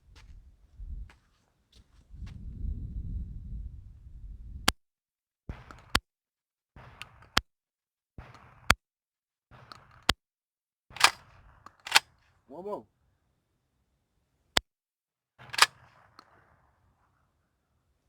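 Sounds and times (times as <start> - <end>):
shell clicking into magazine: 11.0 - 11.2, 15.5 - 15.8.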